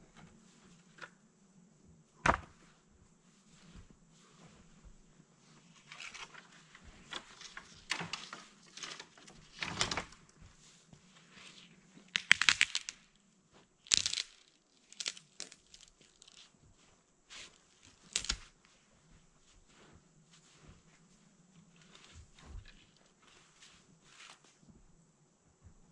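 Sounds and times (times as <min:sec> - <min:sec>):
branches snapping: 0:12.1 - 0:13.0, 0:13.8 - 0:16.4, 0:18.0 - 0:18.5.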